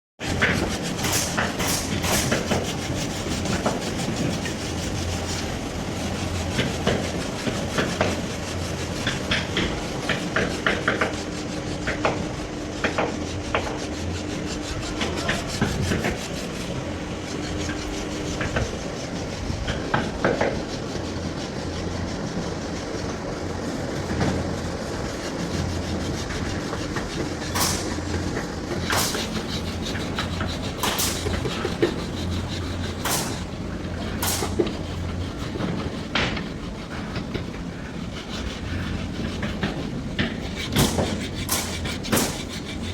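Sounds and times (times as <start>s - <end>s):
rubbing and scraping wood: 0.2s - 42.9s.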